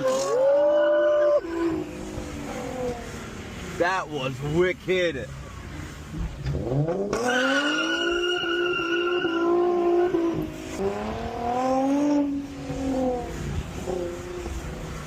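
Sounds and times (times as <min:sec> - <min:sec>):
car engine revving hard: 0:06.4 - 0:15.0
tyres squealing: 0:07.2 - 0:10.4.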